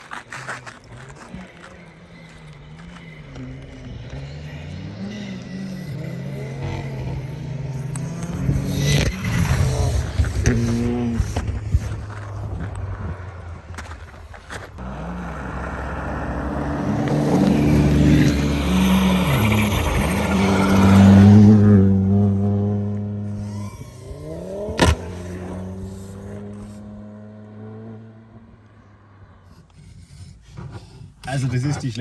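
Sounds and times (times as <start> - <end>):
car engine revving: 0.0 - 32.0
sharp crack: 24.6 - 25.6.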